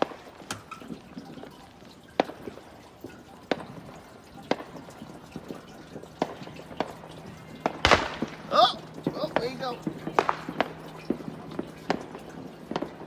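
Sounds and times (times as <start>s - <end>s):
distant fireworks bangs: 0.0s - 13.0s.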